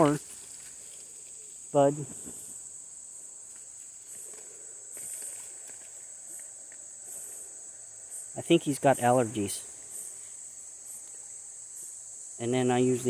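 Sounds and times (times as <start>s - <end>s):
faint rustles: 0.0s - 8.3s
high-pitched insect chorus: 0.0s - 13.0s.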